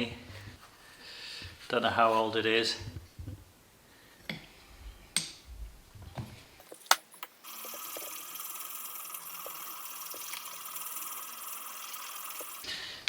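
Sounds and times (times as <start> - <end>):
steady high hiss: 7.3 - 13.0.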